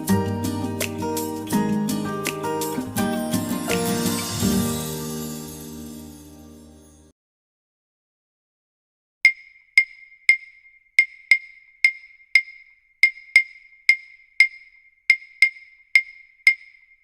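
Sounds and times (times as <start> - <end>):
wood-block-like ticks: 9.2 - 17.0.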